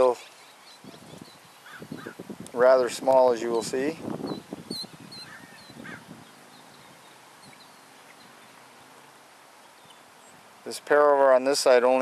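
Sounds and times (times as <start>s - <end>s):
faint distant bird chirps: 0.0s - 2.3s, 4.1s - 10.8s
bird call: 4.3s - 8.8s.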